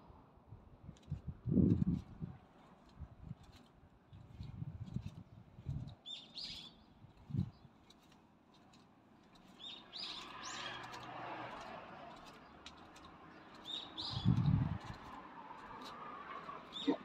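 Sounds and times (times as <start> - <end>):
small birds chirping: 4.1 - 8.2, 9.1 - 15.9, 16.5 - 17.0.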